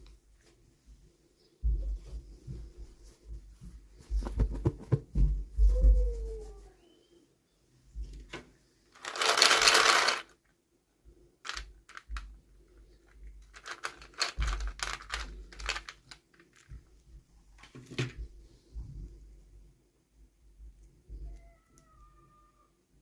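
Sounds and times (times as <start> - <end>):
plastic packaging rustling: 9.0 - 10.4, 11.4 - 12.3, 13.0 - 16.8
small plastic pieces clicking: 9.0 - 10.4, 11.4 - 12.4, 13.0 - 16.8.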